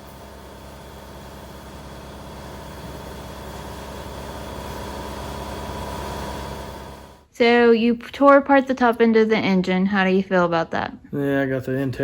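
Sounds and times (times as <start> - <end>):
steady machine hum: 0.0 - 7.3.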